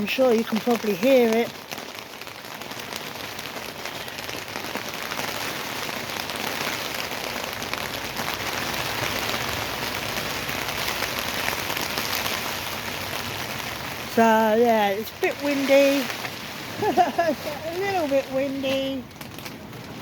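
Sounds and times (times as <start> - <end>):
heavy rain in wind: 0.0 - 20.0.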